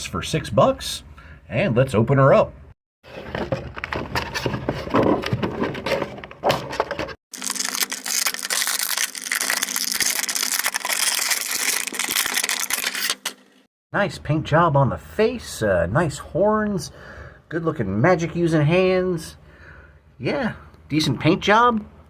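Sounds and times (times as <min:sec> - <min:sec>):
packaging crackling and crinkling: 0:07.3 - 0:13.4.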